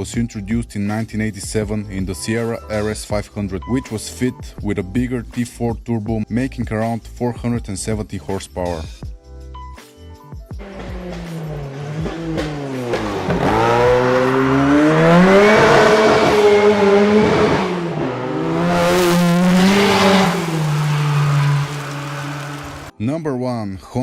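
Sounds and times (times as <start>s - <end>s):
car engine accelerating: 10.6s - 22.9s.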